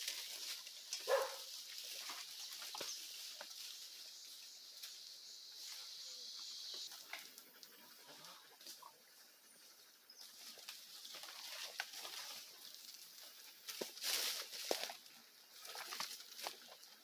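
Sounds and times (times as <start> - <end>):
steady high hiss: 3.0 - 8.0.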